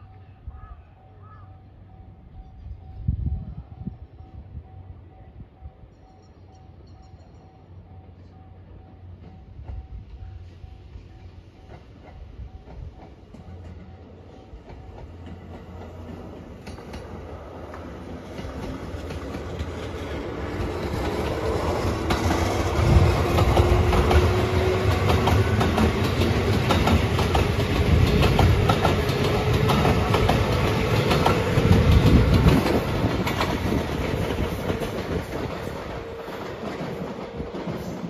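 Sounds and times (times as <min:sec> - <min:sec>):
train wheels clacking over rail joints: 0:11.6 - 0:38.0.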